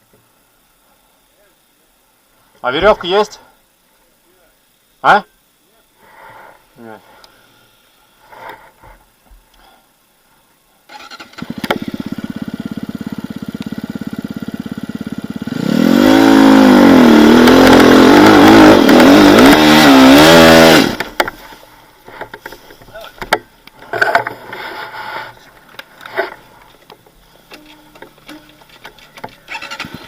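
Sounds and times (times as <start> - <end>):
vehicle engine starting and revving: 10.9 - 21.2, 29.4 - 30.0.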